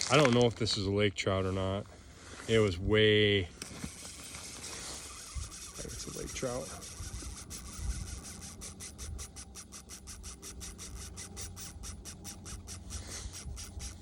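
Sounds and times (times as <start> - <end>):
fishing reel ticking: 3.6 - 14.0.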